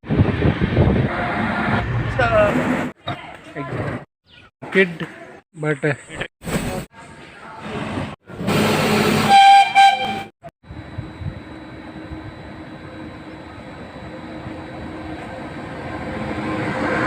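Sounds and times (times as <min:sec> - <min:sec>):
approaching train rumble: 0:07.4 - 0:17.0
train horn: 0:08.6 - 0:10.3.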